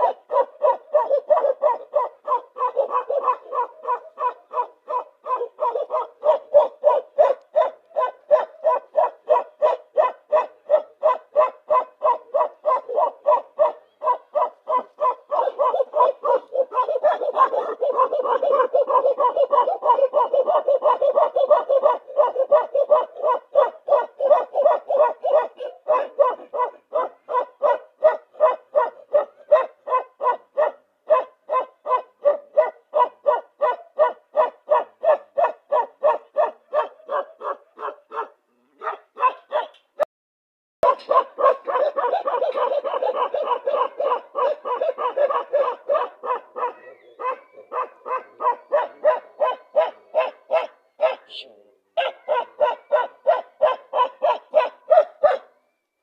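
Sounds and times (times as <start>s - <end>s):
dog barking: 0.0s - 40.0s, 40.8s - 55.6s.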